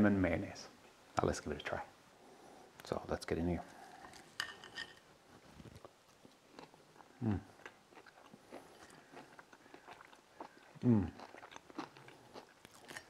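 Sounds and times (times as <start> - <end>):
crunching fried chicken crust: 5.6 - 13.0
short vocal sound: 10.8 - 11.2.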